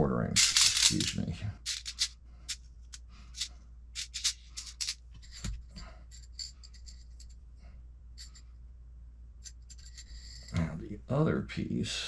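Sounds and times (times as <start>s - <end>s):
small screws clicking and rattling: 0.4s - 5.5s, 6.1s - 7.4s, 9.4s - 10.6s.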